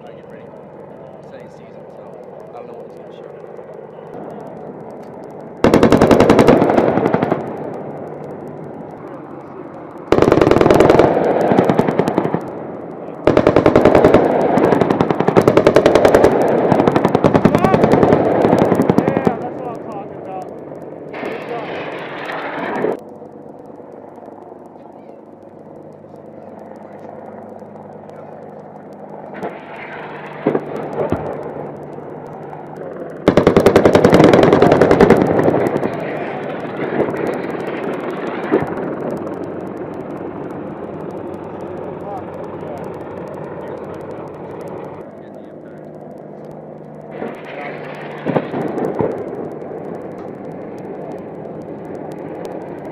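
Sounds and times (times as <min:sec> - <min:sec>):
low engine drone: 0:00.0 - 0:52.9
rapid automatic gunfire: 0:05.5 - 0:08.7, 0:10.0 - 0:23.0, 0:29.2 - 0:45.0, 0:47.0 - 0:52.9
gunfire echo: 0:05.6 - 0:08.0, 0:29.3 - 0:31.8
machine-gun fire: 0:05.6 - 0:08.7, 0:10.0 - 0:23.0, 0:29.2 - 0:45.0, 0:47.1 - 0:52.9.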